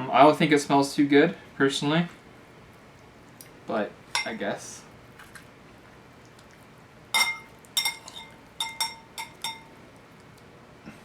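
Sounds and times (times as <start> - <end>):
cutlery clinking against plate: 4.2 - 4.4, 7.2 - 9.7.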